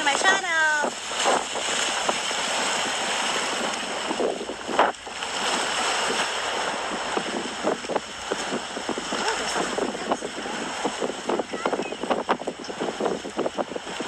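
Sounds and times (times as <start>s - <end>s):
small waves washing on shore: 0.0s - 14.0s.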